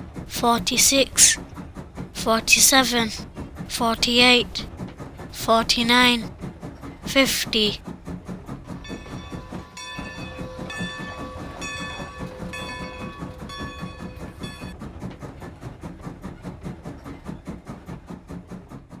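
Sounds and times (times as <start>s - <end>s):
train chugging: 0.0s - 19.0s
train whistle blasts: 8.7s - 14.8s.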